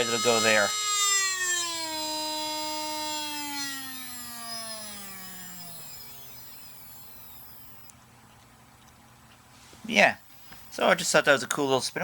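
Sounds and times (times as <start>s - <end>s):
drive spindle motor whine: 0.0s - 8.0s.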